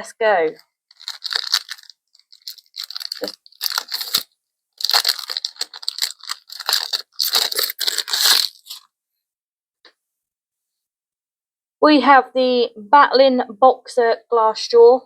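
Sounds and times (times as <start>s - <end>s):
wrapper tearing and crinkling: 0.9s - 8.8s.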